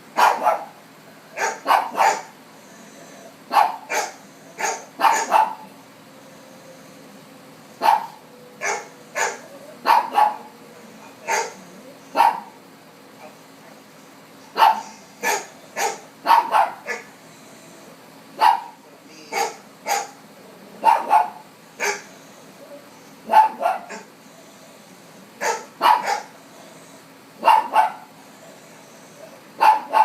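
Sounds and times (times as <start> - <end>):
dogs on television: 0.0 - 30.0
dog barking: 0.2 - 0.8, 1.4 - 2.4, 3.5 - 5.7, 7.8 - 12.6, 14.5 - 17.1, 18.4 - 20.2, 20.8 - 22.2, 23.2 - 24.1, 25.4 - 26.3, 27.4 - 28.1, 29.6 - 30.0.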